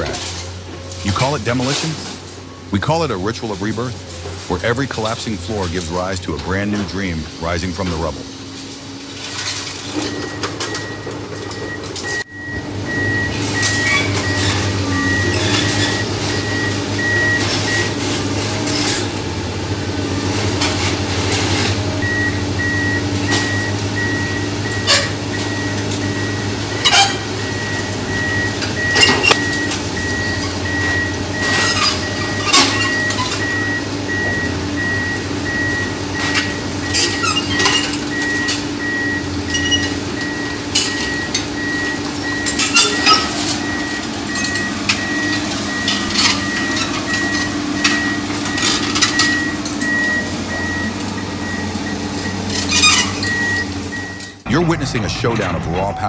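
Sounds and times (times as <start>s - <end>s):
diesel engine running: 0.0s - 56.0s
back-up alarm beeping: 9.9s - 19.1s, 21.8s - 56.0s.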